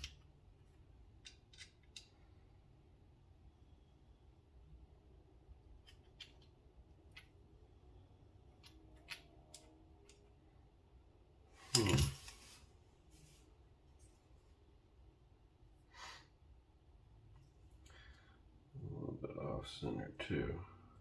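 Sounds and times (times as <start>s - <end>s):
small tools clicking and tapping: 1.2s - 2.1s.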